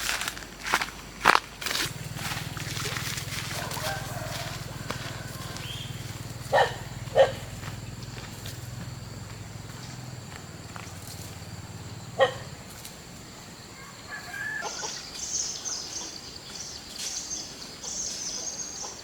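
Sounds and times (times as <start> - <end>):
low steady hum: 1.5 - 13.7
farmyard birds chirping: 1.9 - 19.0.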